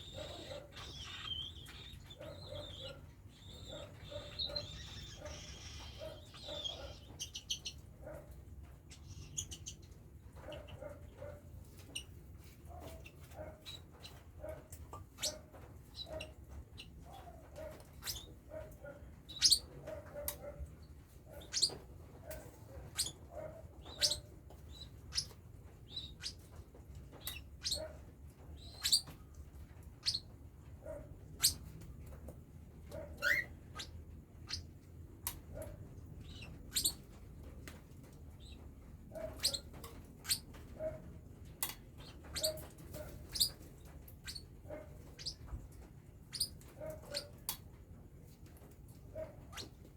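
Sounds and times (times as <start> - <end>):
chicks chirping: 0.0 - 7.8, 42.2 - 47.4.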